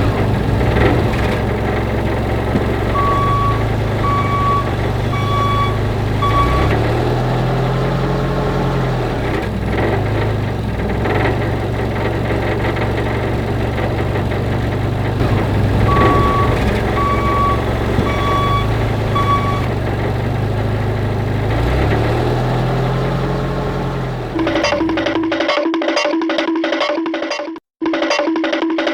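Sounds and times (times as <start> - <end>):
truck engine running: 0.0 - 25.4
reversing alarm beeping: 2.0 - 7.5, 15.2 - 19.8.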